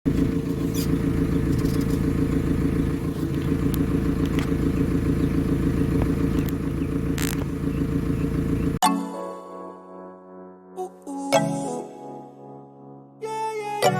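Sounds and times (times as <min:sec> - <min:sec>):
diesel engine running: 0:00.0 - 0:08.8
music: 0:08.8 - 0:13.9.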